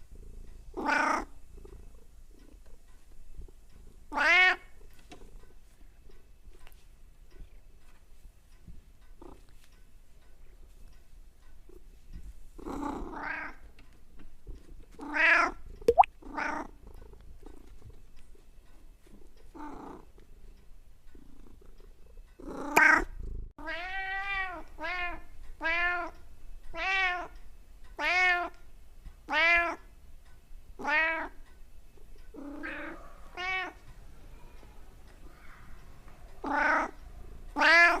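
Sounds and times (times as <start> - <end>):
cat meowing: 23.6 - 26.1, 32.4 - 33.8, 36.4 - 37.0, 37.6 - 38.0.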